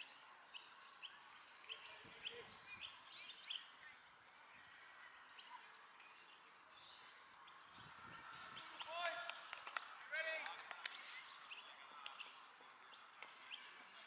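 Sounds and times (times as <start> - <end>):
bird chirping: 0.0 - 10.0, 10.8 - 14.0
faint outdoor background noise: 0.0 - 14.0.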